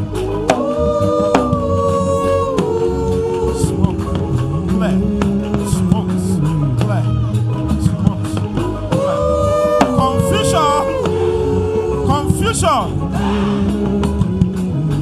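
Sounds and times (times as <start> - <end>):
bass guitar line: 0.0 - 15.0
light drum beat: 0.0 - 15.0.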